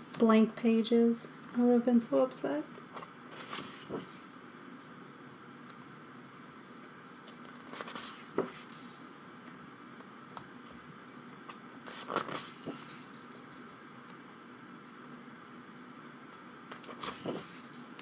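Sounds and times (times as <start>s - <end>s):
book pages turning: 3.0s - 4.4s, 7.3s - 9.1s, 11.4s - 13.8s, 16.7s - 18.0s.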